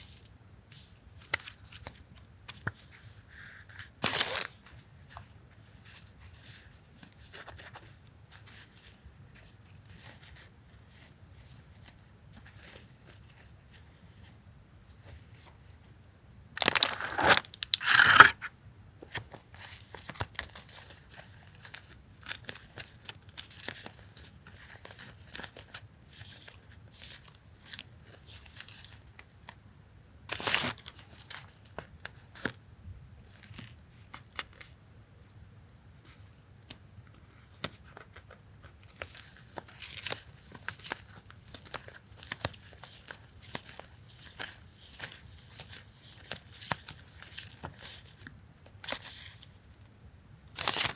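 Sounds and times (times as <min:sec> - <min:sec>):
packaging ripping: 0:16.6 - 0:18.4
paper and plastic rustling: 0:16.6 - 0:18.4.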